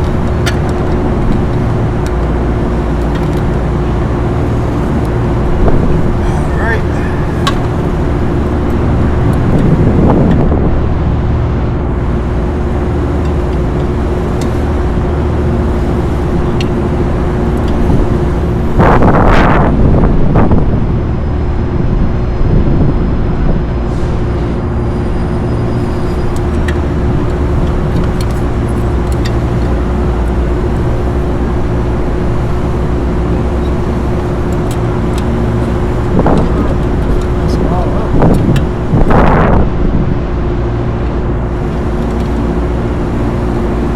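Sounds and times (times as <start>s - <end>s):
low machinery drone: 0.0s - 43.9s
rush of noise: 2.7s - 11.2s.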